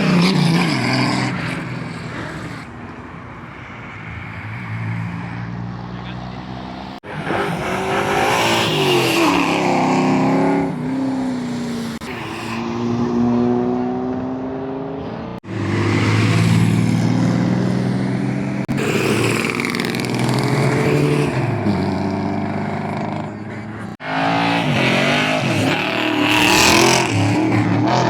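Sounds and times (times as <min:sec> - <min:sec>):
vehicle engines accelerating: 0:00.0 - 0:28.0.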